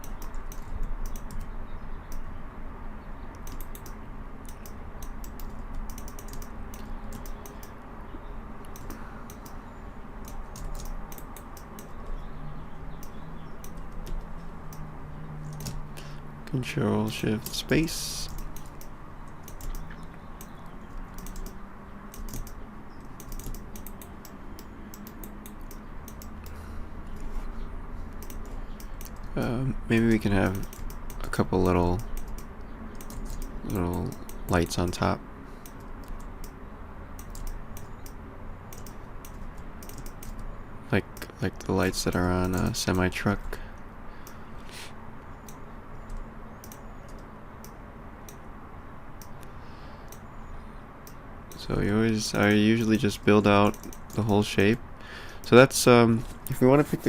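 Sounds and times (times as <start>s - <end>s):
keyboard keys clicking: 0.0s - 2.2s, 3.3s - 7.8s, 8.6s - 9.6s, 10.2s - 12.2s, 12.9s - 15.8s, 18.2s - 27.3s, 28.1s - 29.4s, 30.4s - 31.3s, 31.9s - 35.0s, 37.2s - 40.5s, 45.4s - 48.4s, 53.6s - 54.4s
steady low hum: 0.0s - 57.0s.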